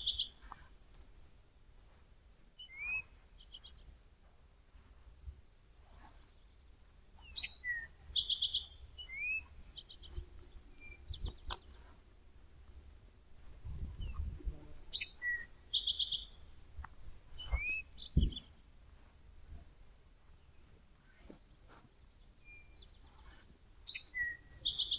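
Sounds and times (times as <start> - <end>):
songbird singing: 0.0 - 0.7, 2.5 - 5.0, 5.6 - 19.2, 20.2 - 24.9
rustling: 0.3 - 3.2, 3.8 - 7.9, 9.1 - 15.4, 16.8 - 24.4
dull low thumps: 12.6 - 14.8, 16.6 - 19.9.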